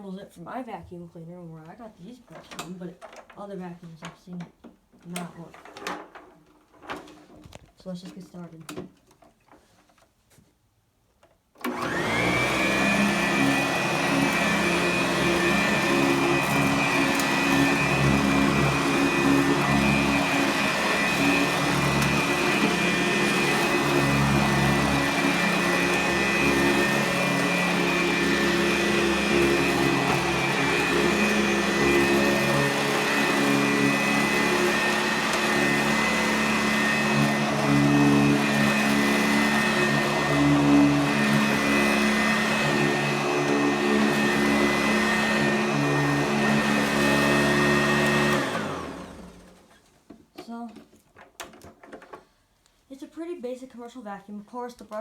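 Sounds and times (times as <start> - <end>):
vacuum cleaner motor whine: 11.6 - 49.7.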